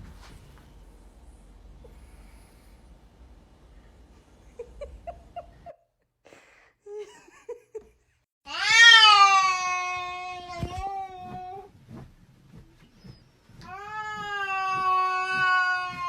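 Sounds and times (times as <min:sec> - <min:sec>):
cat meowing: 0:08.5 - 0:11.4, 0:13.7 - 0:16.0.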